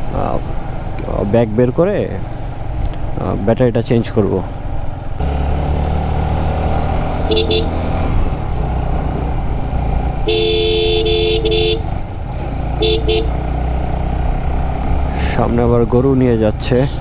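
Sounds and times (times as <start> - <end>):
motorcycle engine running: 4.2 - 17.0
motorcycle horn beeping: 7.2 - 7.9, 10.2 - 12.0, 12.8 - 13.4.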